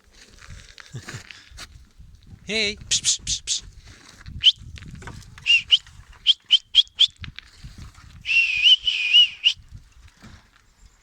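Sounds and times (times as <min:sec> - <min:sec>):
person whistling: 0:05.4 - 0:07.2, 0:08.2 - 0:09.6.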